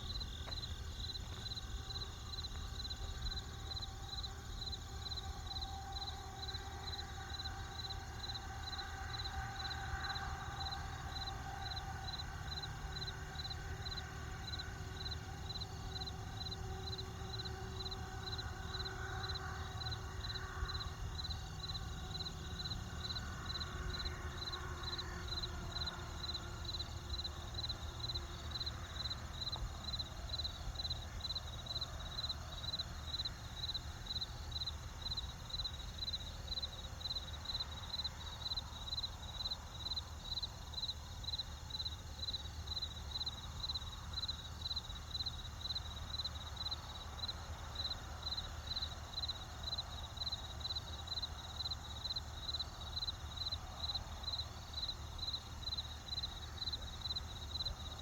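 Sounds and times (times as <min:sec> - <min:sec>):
cricket chirping: 0:00.0 - 0:58.0.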